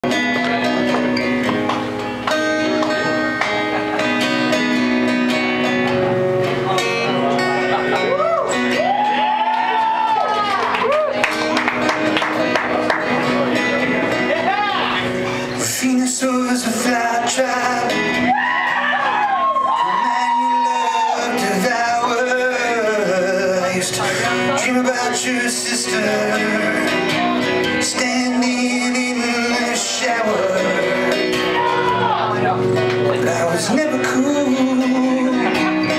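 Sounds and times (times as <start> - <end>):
guitar strummed chords: 0.0 - 35.9
man singing: 15.0 - 18.4, 19.6 - 35.9.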